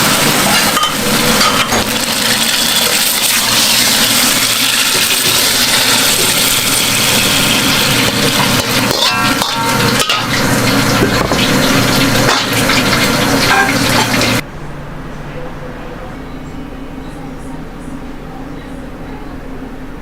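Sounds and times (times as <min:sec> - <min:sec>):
food sizzling on a griddle: 0:00.0 - 0:14.4.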